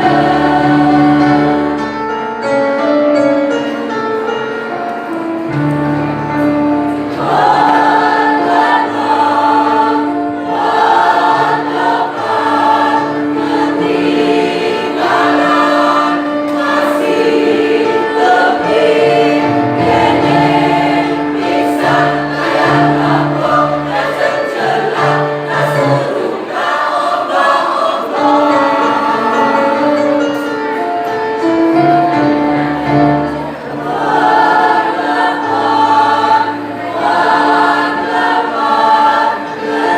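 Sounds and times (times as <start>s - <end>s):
choir singing in harmony: 0.0s - 4.4s, 5.5s - 39.9s.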